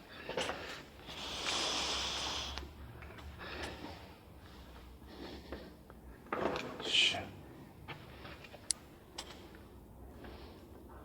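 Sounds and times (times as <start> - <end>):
person breathing: 0.0 - 6.1, 9.5 - 11.0.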